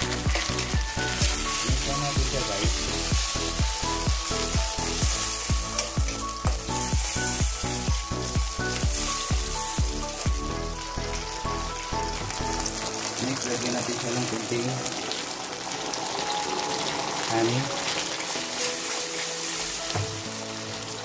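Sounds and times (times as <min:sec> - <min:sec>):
background music with quick beat: 0:00.0 - 0:12.7, 0:18.3 - 0:20.5
sauce sizzling in a pan: 0:00.0 - 0:21.0.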